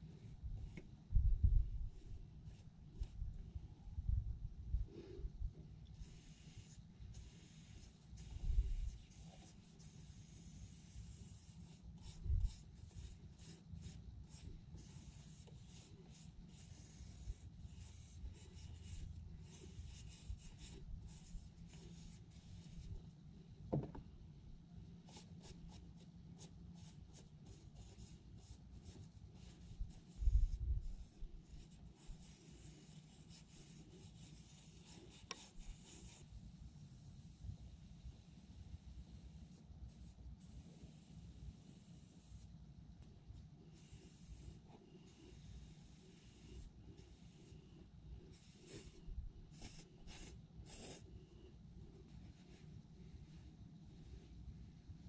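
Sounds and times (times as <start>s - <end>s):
dull thumps: 23.7s - 24.1s.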